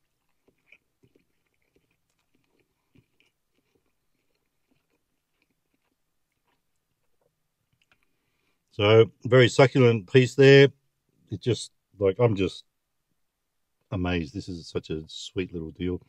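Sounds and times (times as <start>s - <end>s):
chewing crispy food: 0.0s - 8.7s.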